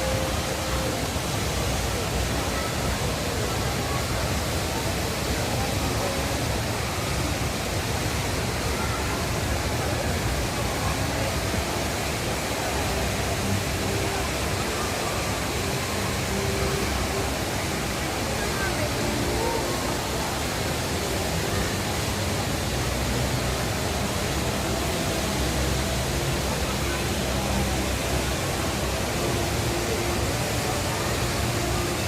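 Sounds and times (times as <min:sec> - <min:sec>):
indoor waterfall pouring: 0:00.0 - 0:32.0.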